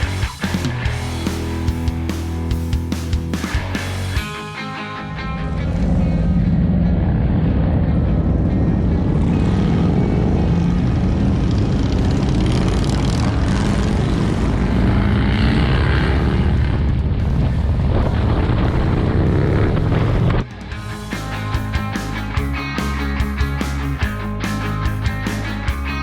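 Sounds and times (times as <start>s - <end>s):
motorcycle engine at speed: 5.4s - 26.0s
wind noise on microphone: 12.8s - 20.5s.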